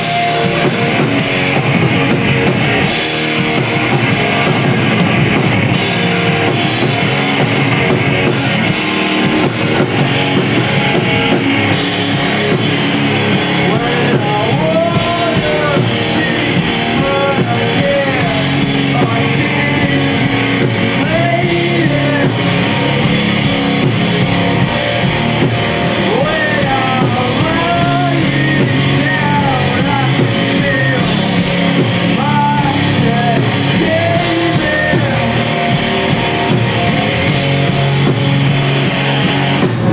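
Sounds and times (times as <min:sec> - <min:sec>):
drum kit: 0:00.0 - 0:39.9
electric guitars: 0:00.0 - 0:39.9
person singing: 0:12.4 - 0:38.0.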